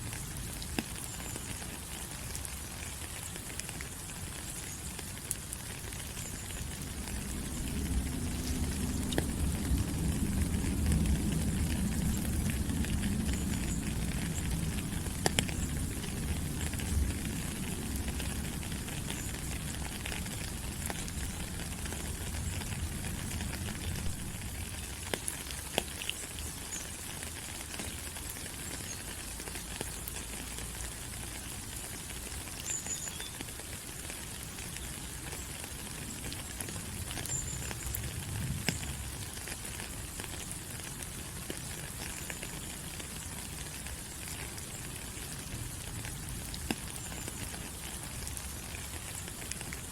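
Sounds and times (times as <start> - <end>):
rain on leaves: 0.0 - 49.9
low rumble: 6.7 - 15.9.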